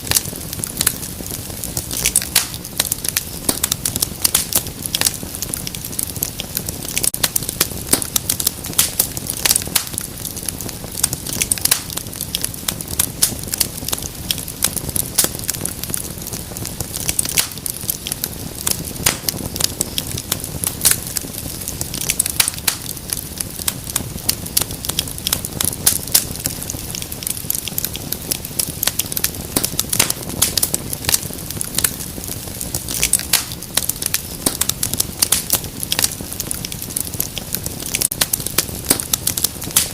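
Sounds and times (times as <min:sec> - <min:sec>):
low rumble of flame: 0:00.0 - 0:39.9
wood fire crackling: 0:00.0 - 0:39.9.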